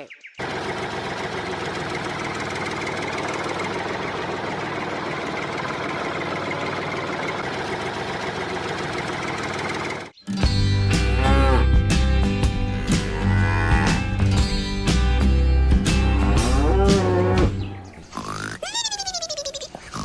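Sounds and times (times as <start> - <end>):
tractor engine idling: 0.4 - 10.2.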